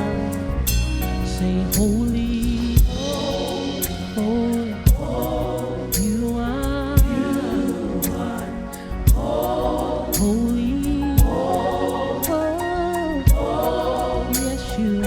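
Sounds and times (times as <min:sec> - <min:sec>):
gospel worship band: 0:00.0 - 0:15.0
deep kick drum hits: 0:02.7 - 0:04.2, 0:04.9 - 0:05.4, 0:07.0 - 0:07.3, 0:09.1 - 0:09.5, 0:11.2 - 0:11.6, 0:13.3 - 0:13.7
voices singing long notes: 0:02.9 - 0:15.0.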